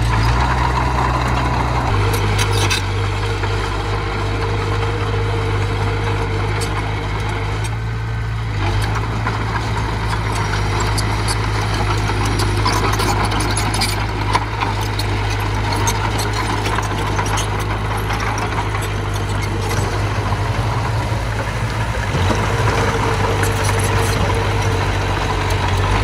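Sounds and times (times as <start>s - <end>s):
bulldozer diesel engine running: 0.0s - 26.0s
metal rattles and clanks: 8.8s - 26.0s.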